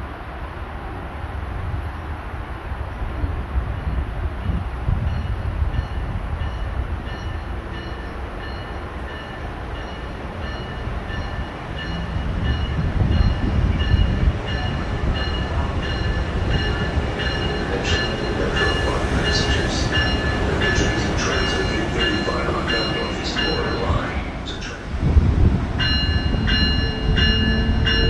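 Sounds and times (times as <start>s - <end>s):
train rumbling: 0.0s - 28.0s
bell ringing: 6.5s - 24.1s, 25.8s - 28.0s.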